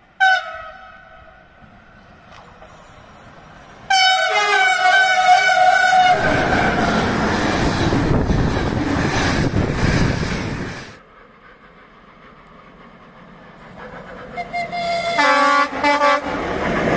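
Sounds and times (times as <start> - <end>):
train passing with rushing rail noise: 0.0 - 16.9
train horn: 0.2 - 1.5, 3.9 - 7.4, 14.3 - 16.4.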